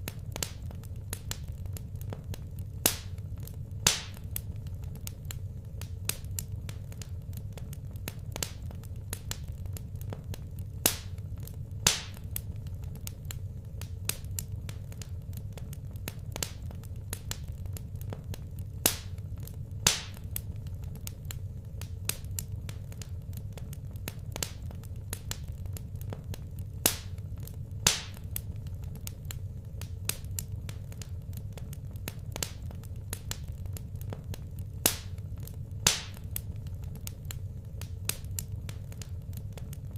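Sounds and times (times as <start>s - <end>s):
fire crackling and popping: 0.0s - 39.9s
steady low hum: 0.0s - 39.9s.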